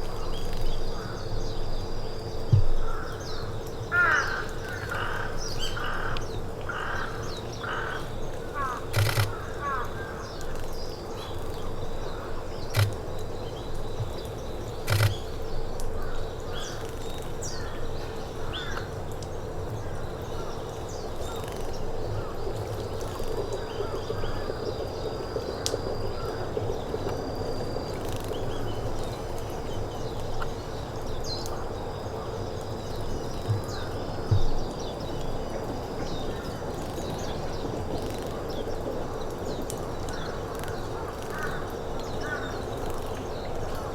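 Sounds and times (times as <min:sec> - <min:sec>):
outdoor background noise: 0:00.0 - 0:43.9
sharp clicks: 0:08.9 - 0:09.4, 0:12.7 - 0:13.0, 0:14.9 - 0:15.3.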